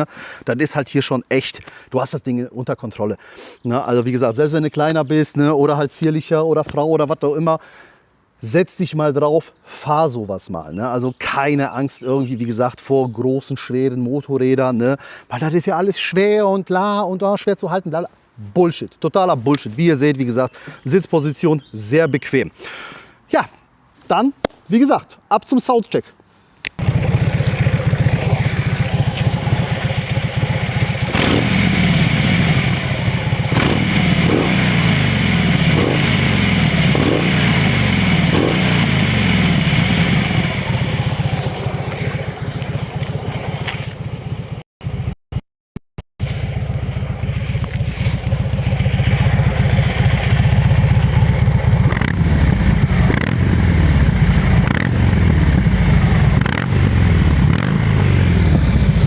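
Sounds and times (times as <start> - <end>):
motorcycle engine revving and idling: 26.8 - 45.2, 46.2 - 59.0.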